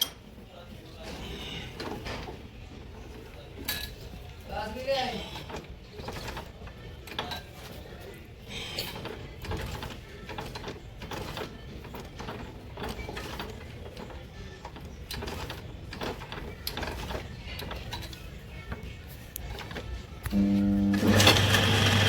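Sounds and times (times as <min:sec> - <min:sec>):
light clicks and metal clatter: 0:03.1 - 0:04.3.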